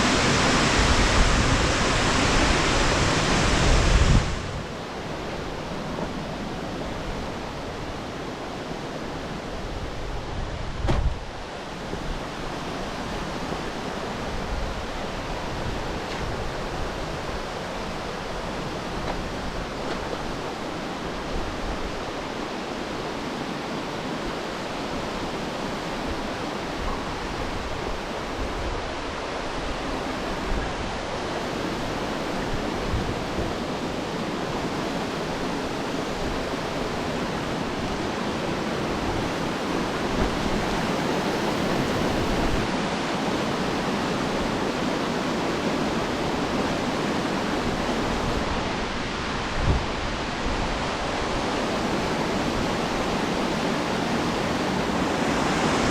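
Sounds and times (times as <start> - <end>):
waterfall rushing water: 0.0 - 55.9
wind rumble on microphone: 0.0 - 55.9
brief knock: 10.8 - 11.1.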